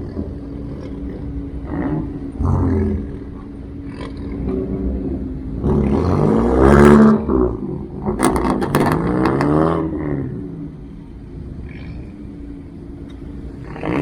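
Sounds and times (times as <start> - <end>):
car engine revving: 0.0 - 14.0
sharp cracks: 8.2 - 9.6.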